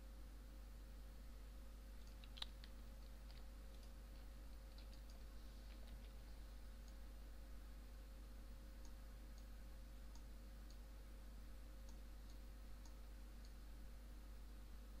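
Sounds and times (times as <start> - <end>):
low electrical hum: 0.0 - 15.0
faint computer mouse clicks: 2.0 - 4.0.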